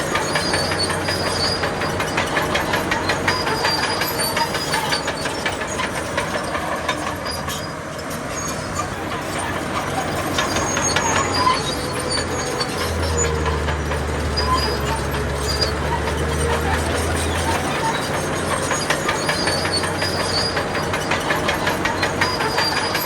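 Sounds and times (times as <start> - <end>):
diesel engine running: 0.0 - 23.0
metallic clanking and rattling: 9.2 - 23.0.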